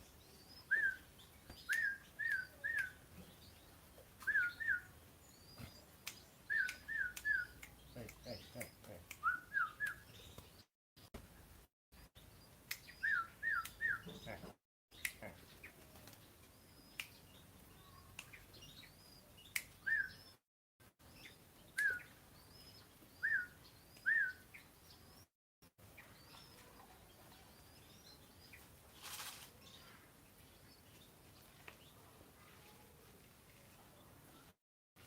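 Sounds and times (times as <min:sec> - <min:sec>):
small birds chirping: 0:00.0 - 0:34.6.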